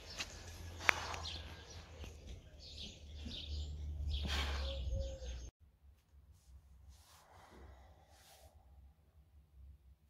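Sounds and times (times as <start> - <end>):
small birds chirping: 0.0 - 5.5.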